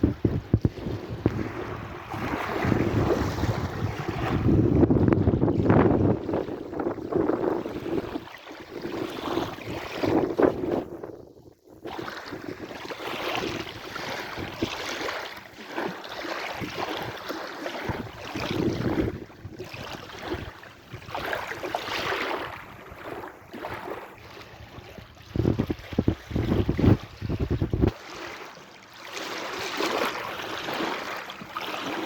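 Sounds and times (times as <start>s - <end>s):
sea waves washing in: 0.0s - 11.0s, 11.8s - 32.0s
wind rumbling on microphone: 0.0s - 15.0s, 17.8s - 28.0s.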